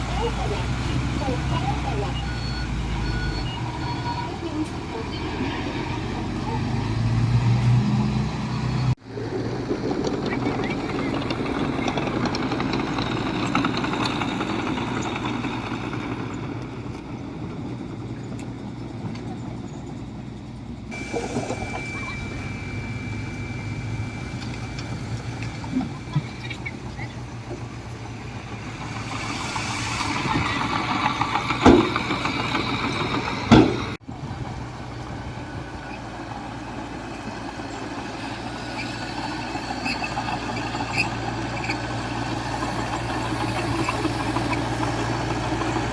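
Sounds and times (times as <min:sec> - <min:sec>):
diesel engines of heavy machinery: 0:00.0 - 0:45.9
thin high whine: 0:20.9 - 0:27.5
loud metal clanks: 0:27.6 - 0:34.0.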